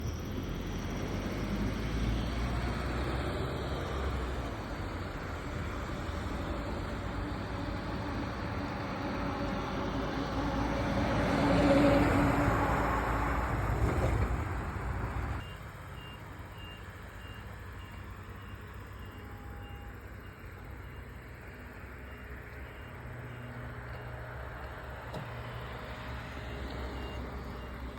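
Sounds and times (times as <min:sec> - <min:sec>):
faint high beep: 0:15.4 - 0:24.1, 0:26.4 - 0:27.9.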